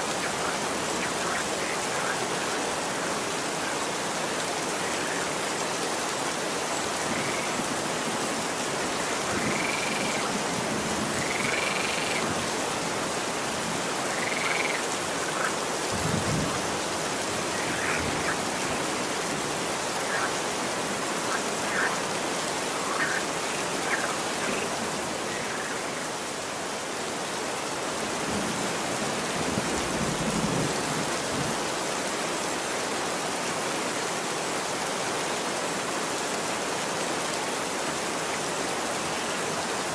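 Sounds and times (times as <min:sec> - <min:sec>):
steady rain falling: 0:00.0 - 0:39.9
animal calls and chirps: 0:09.0 - 0:10.4, 0:11.2 - 0:12.2, 0:14.1 - 0:15.6.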